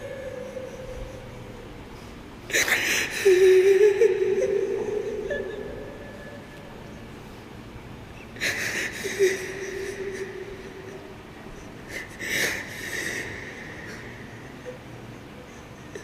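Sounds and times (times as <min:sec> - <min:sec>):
man weeping: 0:00.0 - 0:01.7, 0:02.7 - 0:06.4, 0:08.8 - 0:11.1
held whimper: 0:00.0 - 0:07.0.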